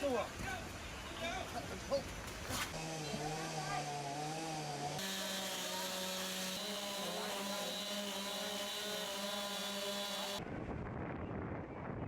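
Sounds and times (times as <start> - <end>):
engine running: 5.0 - 10.4.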